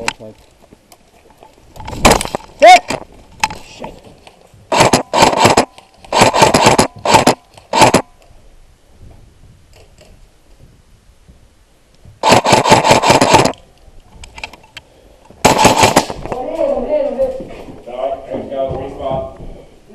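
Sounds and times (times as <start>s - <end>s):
airsoft gun firing bursts: 4.7s - 8.1s, 12.2s - 13.6s, 15.4s - 16.2s.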